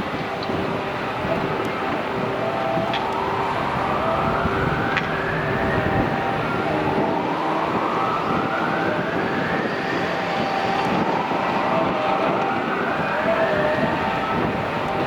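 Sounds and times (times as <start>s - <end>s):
vehicles passing: 0.0s - 15.0s.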